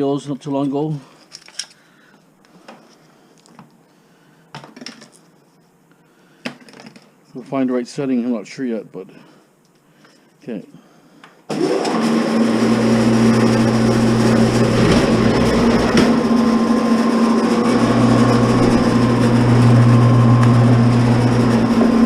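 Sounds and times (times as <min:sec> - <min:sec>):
wire stripper motor humming: 0:11.5 - 0:22.0.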